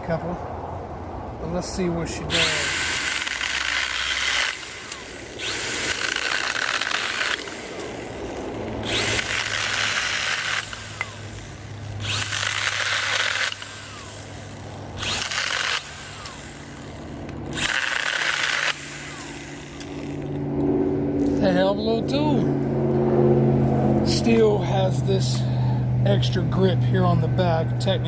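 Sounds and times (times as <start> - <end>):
mini chainsaw running in bursts: 2.3 - 20.3.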